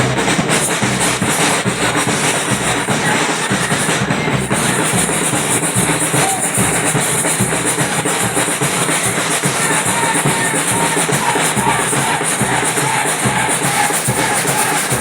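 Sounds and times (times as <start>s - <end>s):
low drum beats: 0.0s - 15.0s
samba percussion ensemble: 0.0s - 15.0s.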